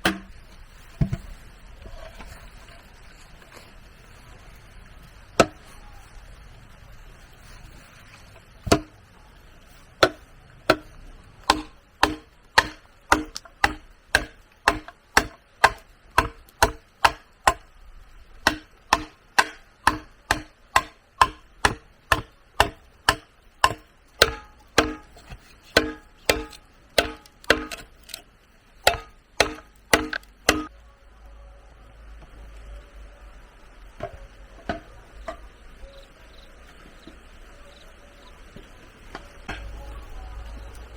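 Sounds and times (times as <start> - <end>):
chopping blows on bamboo: 5.4 - 5.6, 8.6 - 9.0, 10.0 - 17.7, 18.4 - 27.9, 28.8 - 30.7.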